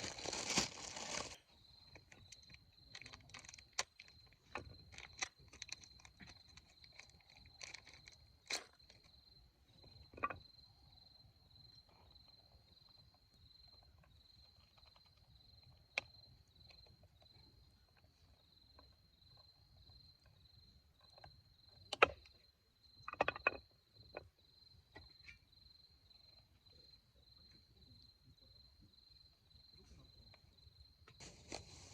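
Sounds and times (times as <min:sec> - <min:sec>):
cricket chirping: 0:00.0 - 0:31.9.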